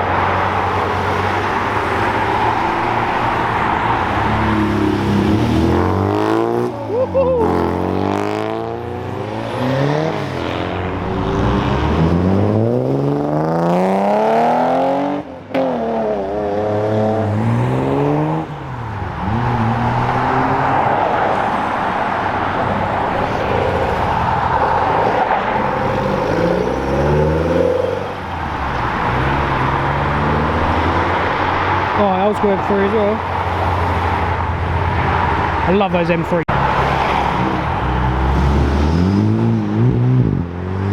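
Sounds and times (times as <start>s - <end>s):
car engines revving: 0.0s - 40.9s
rough engine noise: 18.5s - 39.6s.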